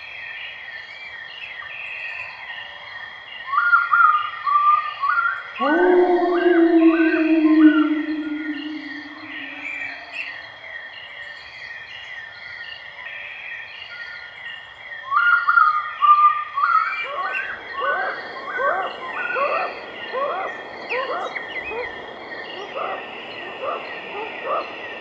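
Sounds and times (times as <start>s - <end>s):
lower upward sweeping bird calls: 5.6s - 10.3s.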